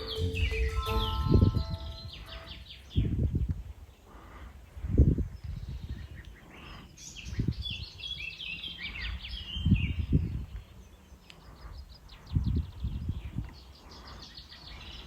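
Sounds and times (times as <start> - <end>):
low rumble: 0.0 - 2.5
songbird singing: 0.0 - 15.0.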